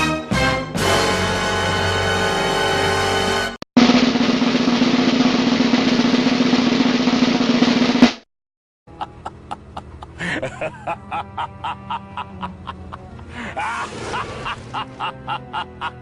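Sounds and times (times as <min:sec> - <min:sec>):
snare drum roll: 0:03.8 - 0:08.2.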